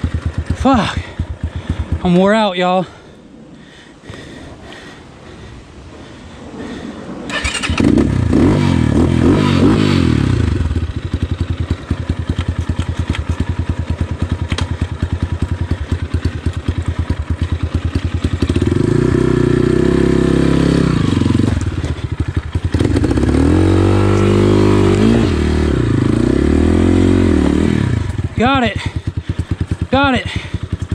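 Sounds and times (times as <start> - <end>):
dirt bike engine revving: 7.3 - 30.9.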